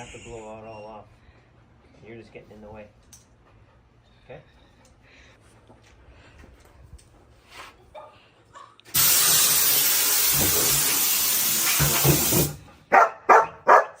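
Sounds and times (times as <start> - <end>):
compressed air hissing: 8.9 - 12.6
dog barking: 12.9 - 14.0.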